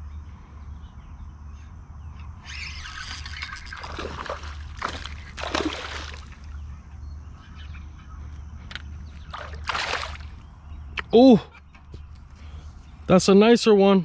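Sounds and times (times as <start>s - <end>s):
low hum: 0.0s - 13.1s
water splashing and sloshing: 3.1s - 6.7s, 8.7s - 10.6s.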